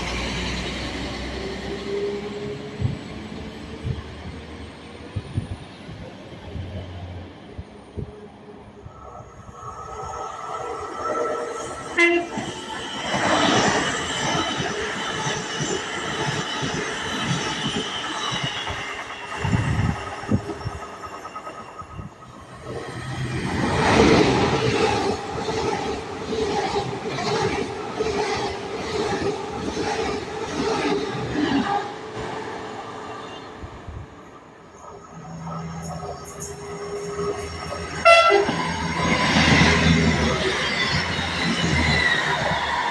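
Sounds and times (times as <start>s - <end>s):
train wheel and rail noise: 0.0s - 42.9s
train horn toot: 11.9s - 12.5s, 38.0s - 38.6s.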